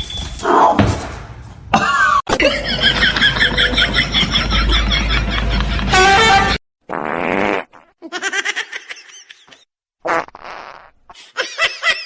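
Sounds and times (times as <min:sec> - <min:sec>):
rasping fart-like blasts: 0:10.0 - 0:11.0.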